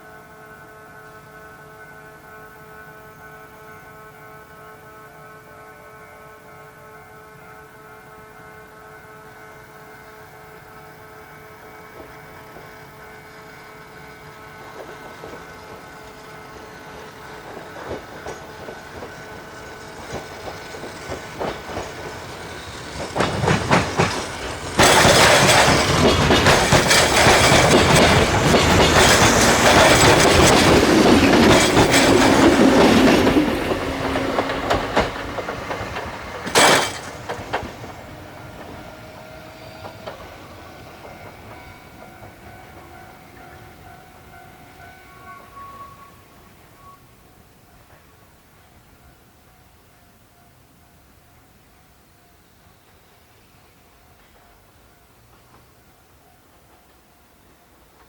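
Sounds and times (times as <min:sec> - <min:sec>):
rail vehicle passing: 0:00.0 - 0:58.0
wheels clattering over rail joints: 0:14.6 - 0:39.0.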